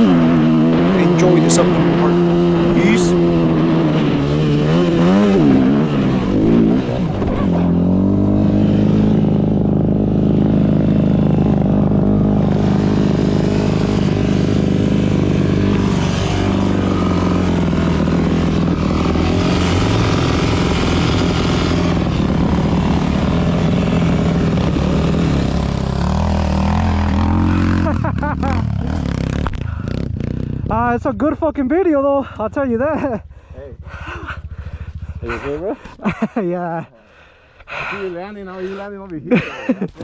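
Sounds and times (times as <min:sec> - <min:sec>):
dirt bike engine revving: 0:00.0 - 0:11.5, 0:12.5 - 0:30.7.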